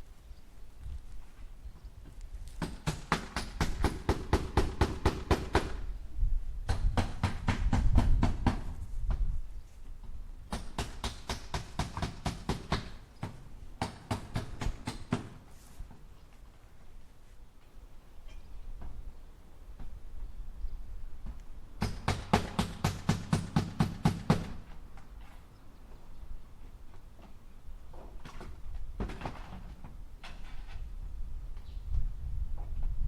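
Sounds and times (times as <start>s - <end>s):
hammer striking nails into wood: 6.7s - 8.7s, 10.5s - 15.4s, 21.8s - 24.6s.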